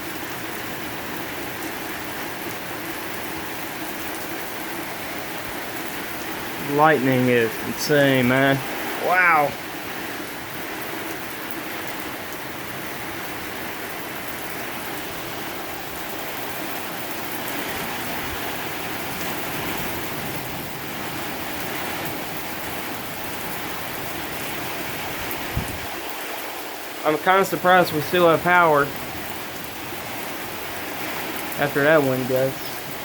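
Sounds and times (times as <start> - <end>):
rain hissing on ground: 0.0 - 33.0
wind: 0.0 - 33.0.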